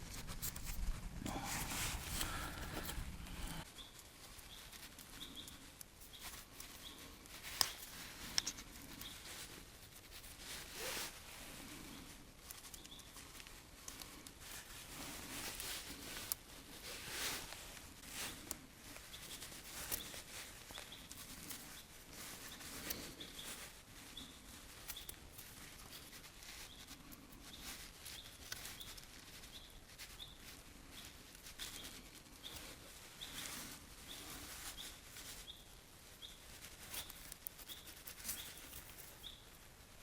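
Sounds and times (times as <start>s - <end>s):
faint clicks and crackles: 0.0s - 40.0s
small bird chirping: 1.9s - 9.4s, 12.7s - 13.4s, 19.0s - 39.6s.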